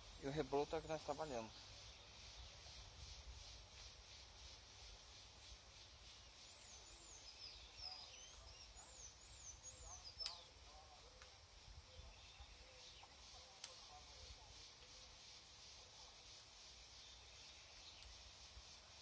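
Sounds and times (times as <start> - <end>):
small bird chirping: 0.0 - 19.0.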